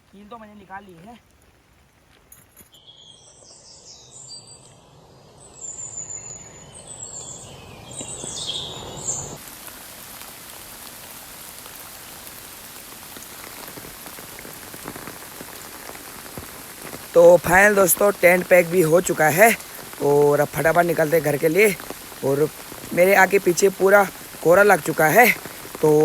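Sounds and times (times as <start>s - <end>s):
birds chirping: 2.7s - 9.4s
heavy rain falling: 7.8s - 26.0s.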